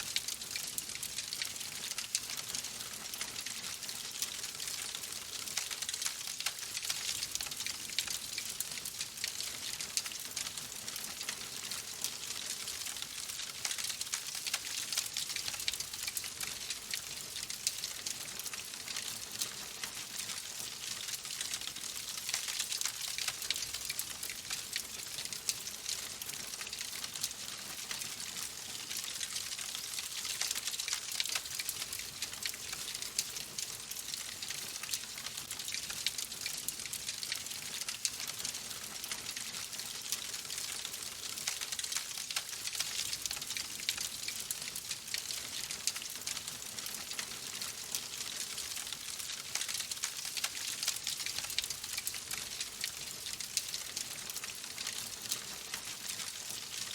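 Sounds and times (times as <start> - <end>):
fireplace fire crackling: 0.1 - 56.9.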